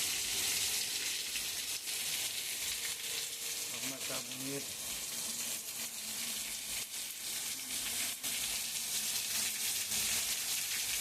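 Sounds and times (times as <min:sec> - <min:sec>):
heavy rain hissing: 0:03.2 - 0:05.9.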